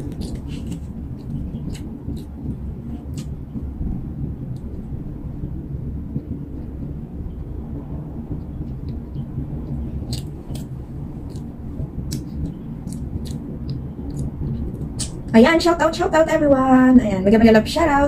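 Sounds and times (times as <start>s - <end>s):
low rumbling noise: 0.0s - 18.0s
wet mouth clicks and smacks: 12.1s - 15.2s.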